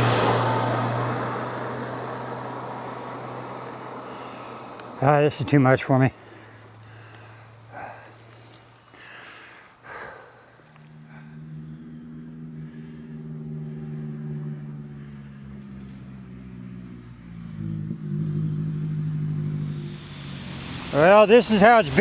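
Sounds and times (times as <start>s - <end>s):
vehicle engine approaching: 0.0s - 22.0s.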